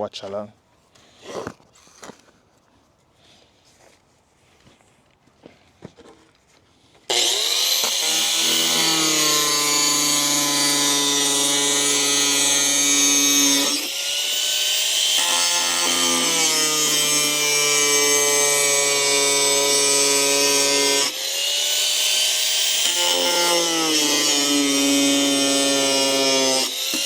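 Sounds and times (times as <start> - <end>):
power tool cutting plastic: 7.1 - 27.0.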